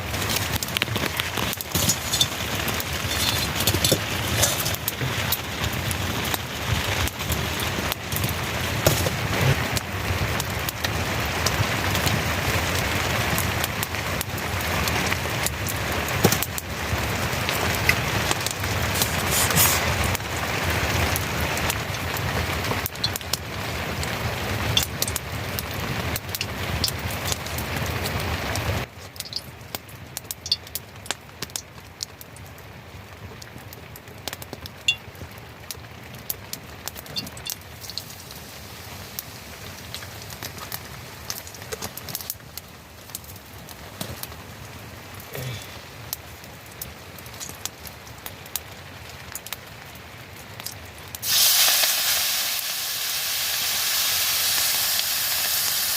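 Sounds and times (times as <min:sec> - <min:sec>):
rain pattering: 0:00.0 - 0:55.9
water drips and ticks: 0:22.8 - 0:23.4, 0:24.7 - 0:25.2, 0:26.1 - 0:28.1, 0:29.1 - 0:32.5, 0:34.2 - 0:38.3, 0:46.1 - 0:51.2.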